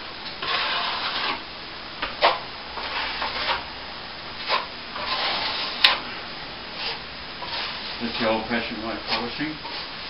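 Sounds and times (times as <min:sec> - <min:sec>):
plastering trowel scraping plaster: 0:00.4 - 0:01.4, 0:02.2 - 0:03.7, 0:04.4 - 0:06.0, 0:06.8 - 0:10.0.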